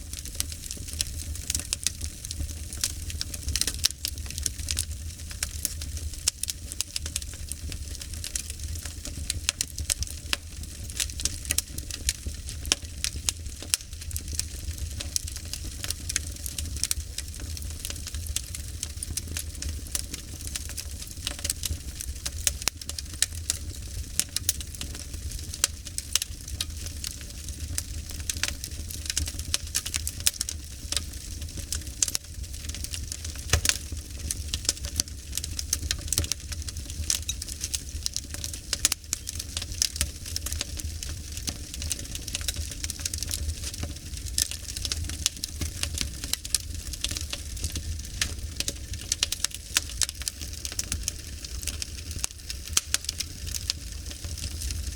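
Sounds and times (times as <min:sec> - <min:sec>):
wood fire crackling and popping: 0:00.0 - 0:54.9.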